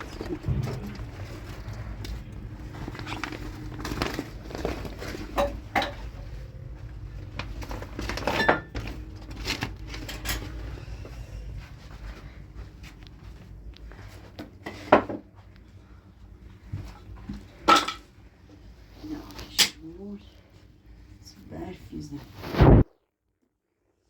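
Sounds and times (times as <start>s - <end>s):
dishes and utensils clinking: 5.1s - 6.3s, 17.6s - 18.1s.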